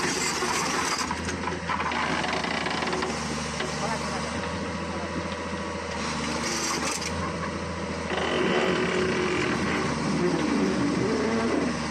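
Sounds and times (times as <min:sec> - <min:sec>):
excavator diesel engine running: 0:00.0 - 0:11.9.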